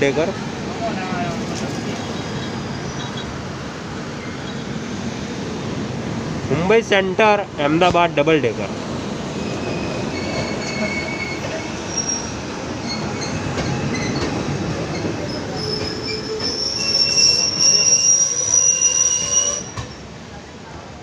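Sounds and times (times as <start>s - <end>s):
train running rumble: 0.0s - 20.3s
train wheels squealing: 9.4s - 20.1s.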